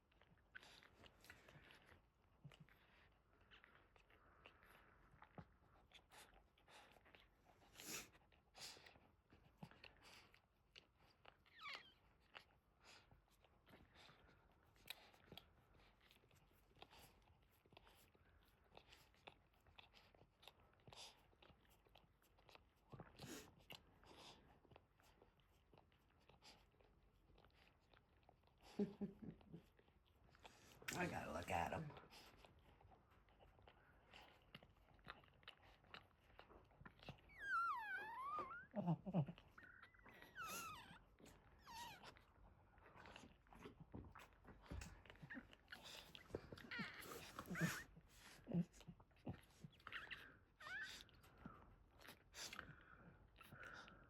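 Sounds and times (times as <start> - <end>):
puppy squealing: 37.3 - 38.8, 39.6 - 41.0, 50.0 - 51.0.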